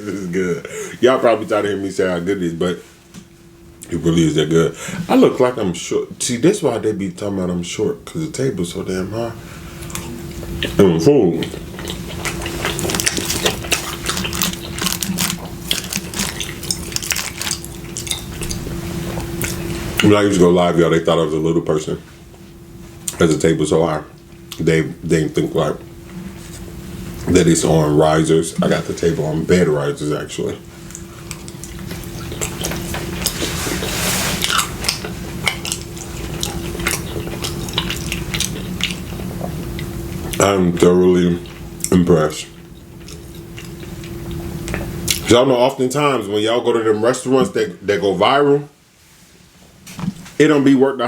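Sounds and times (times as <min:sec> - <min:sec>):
faint steady hum: 0:00.0 - 0:51.0
wet chewing and smacking: 0:11.4 - 0:20.1, 0:30.8 - 0:42.0, 0:42.6 - 0:45.3.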